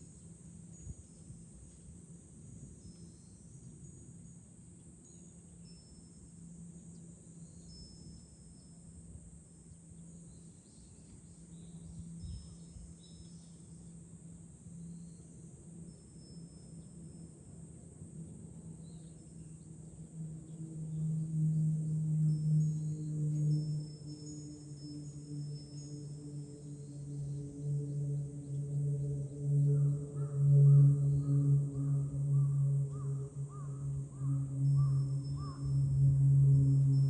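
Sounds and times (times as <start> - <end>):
cicadas droning: 0.0 - 37.0
wind chime ringing: 5.0 - 9.2.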